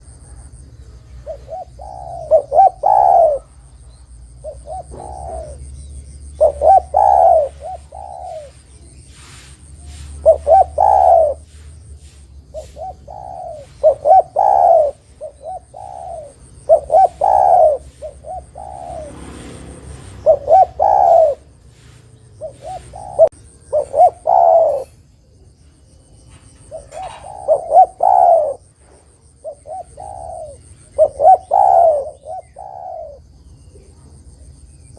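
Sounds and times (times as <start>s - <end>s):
dove cooing: 0.0s - 34.2s.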